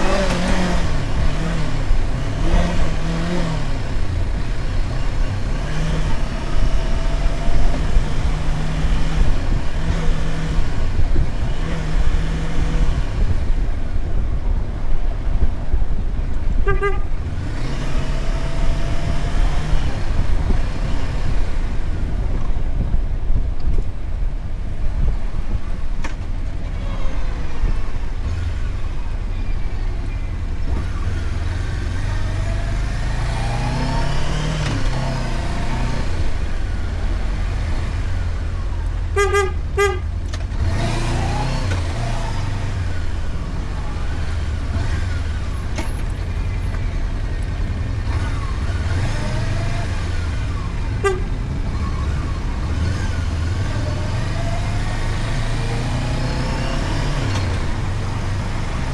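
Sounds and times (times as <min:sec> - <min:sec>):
motorcycle engine revving: 0:00.0 - 0:23.5, 0:24.2 - 0:58.9
vehicle horn toots: 0:16.5 - 0:17.8, 0:39.0 - 0:41.0, 0:50.8 - 0:51.9.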